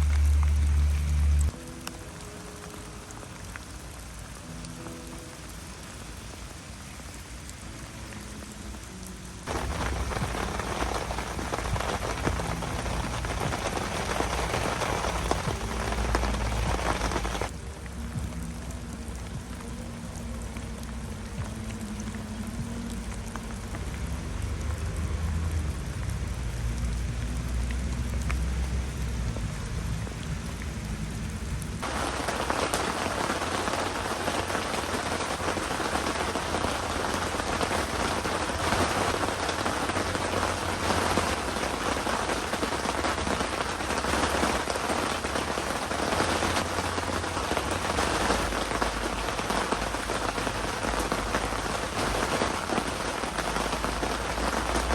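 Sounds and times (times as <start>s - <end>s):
low rumble: 0.0s - 1.6s
heavy rain pouring: 0.0s - 54.9s.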